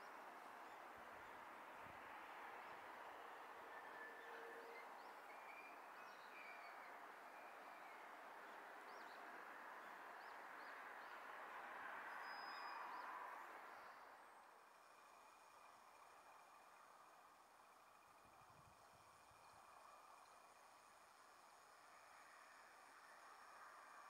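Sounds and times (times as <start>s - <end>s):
distant train running: 2.2s - 6.0s.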